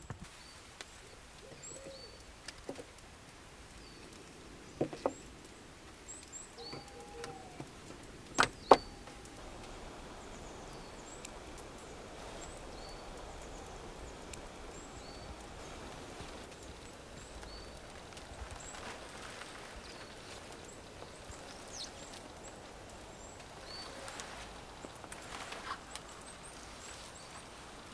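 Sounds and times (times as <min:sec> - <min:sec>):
outdoor background noise: 0:00.0 - 0:27.9
small birds chirping: 0:00.2 - 0:27.9
sharp knocks: 0:08.4 - 0:09.3.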